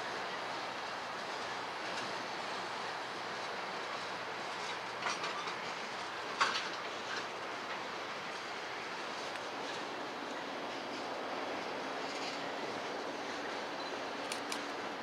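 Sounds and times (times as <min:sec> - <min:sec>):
train wheels rolling on rail: 0:00.0 - 0:15.0
sharp metallic clicks: 0:14.2 - 0:14.7.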